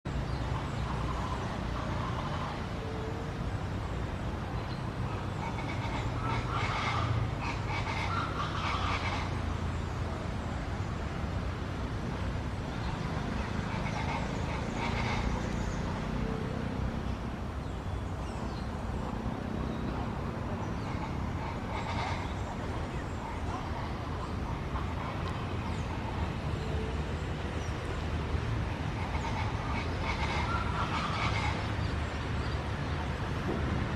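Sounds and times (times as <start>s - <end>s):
hawks screaming: 20.8s - 26.2s, 28.9s - 31.8s.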